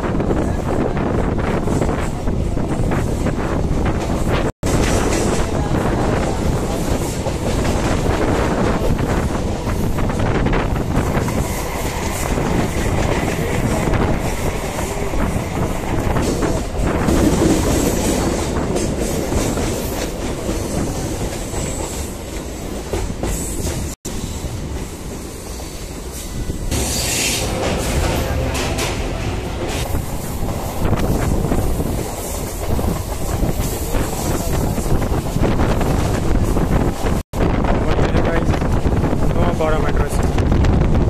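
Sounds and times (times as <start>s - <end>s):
train wheels clattering on track: 1.4s - 37.2s
high-pitched screech: 26.7s - 29.0s.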